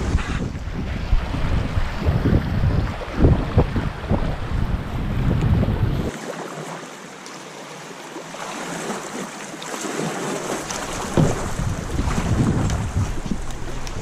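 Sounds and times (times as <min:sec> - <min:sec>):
wind buffeting microphone: 0:00.0 - 0:06.1, 0:10.5 - 0:14.0.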